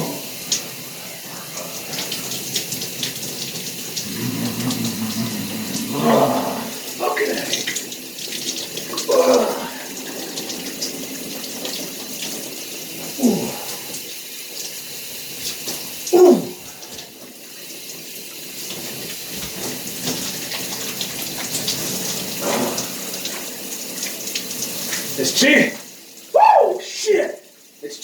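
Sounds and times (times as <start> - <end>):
shower spray running: 0.0 - 28.0
man crying out: 4.1 - 7.4, 9.1 - 9.9, 13.2 - 13.7, 16.1 - 16.6, 26.3 - 27.3.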